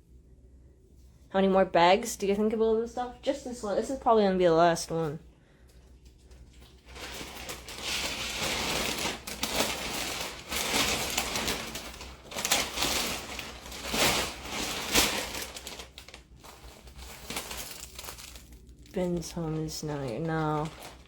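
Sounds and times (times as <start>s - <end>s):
plastic bag crinkling: 6.0s - 21.0s.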